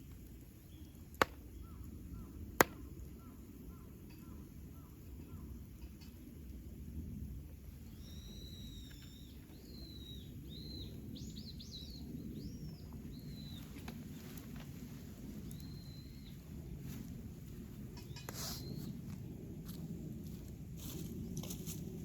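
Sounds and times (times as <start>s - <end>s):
campfire crackling: 0.0s - 4.1s, 12.3s - 18.0s
bird whistling: 7.9s - 12.0s.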